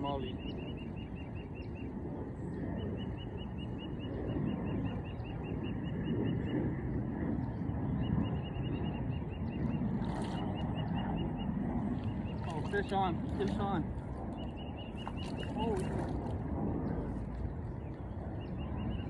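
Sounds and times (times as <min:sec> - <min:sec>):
low rumble: 0:06.1 - 0:19.0.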